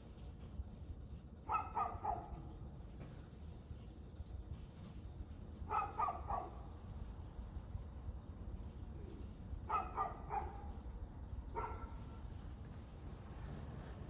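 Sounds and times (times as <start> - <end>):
dog barking: 1.5 - 2.4, 5.7 - 6.6, 9.7 - 10.7, 11.6 - 12.0.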